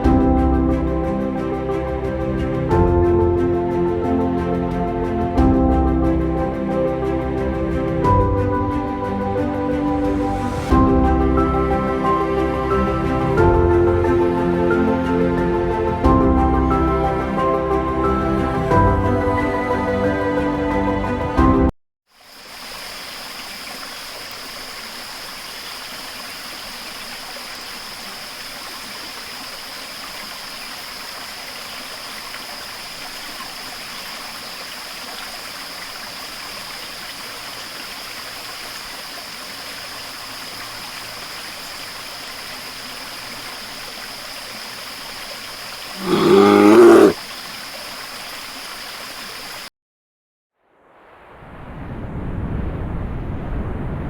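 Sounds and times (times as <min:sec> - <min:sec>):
bear growling: 0:46.0 - 0:47.2.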